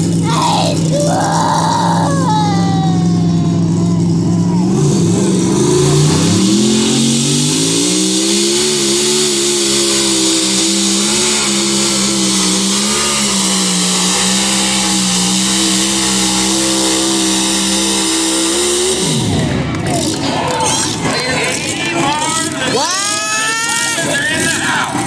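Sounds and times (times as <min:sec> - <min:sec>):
tractor engine at full throttle: 0:03.6 - 0:20.1.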